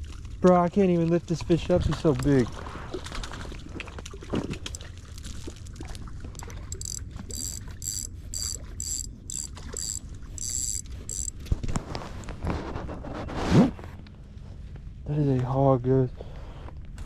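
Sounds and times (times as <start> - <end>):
low steady rumble: 0.0 - 17.0
fishing reel whirring: 6.4 - 11.4.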